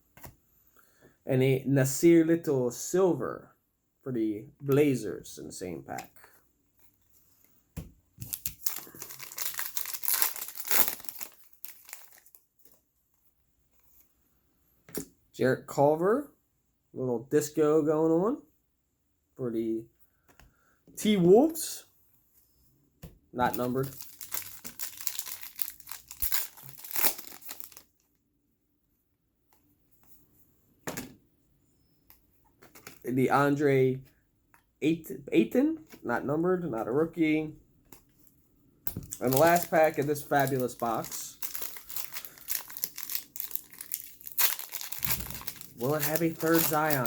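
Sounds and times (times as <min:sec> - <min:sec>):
plastic wrapper tearing and crinkling: 0:08.2 - 0:12.8, 0:23.4 - 0:28.1, 0:39.0 - 0:47.0.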